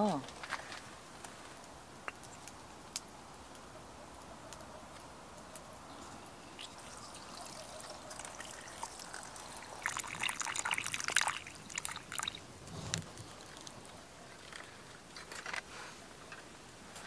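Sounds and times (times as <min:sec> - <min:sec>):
water splashing over shells: 0:06.6 - 0:12.5.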